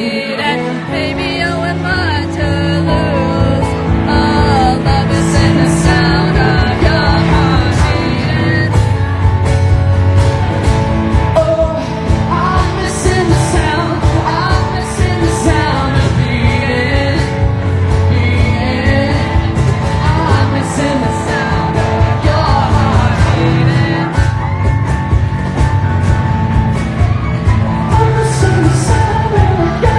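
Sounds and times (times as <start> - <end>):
person singing: 0.0 - 9.7, 11.1 - 25.6, 27.1 - 29.9
live pop-rock band: 0.0 - 29.9
steady drumbeat: 3.6 - 29.9.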